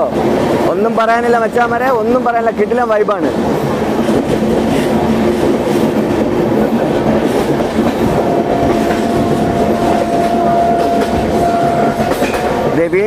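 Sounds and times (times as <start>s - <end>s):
train wheels rumbling on track: 0.0s - 13.0s
thin high whine: 8.2s - 12.6s.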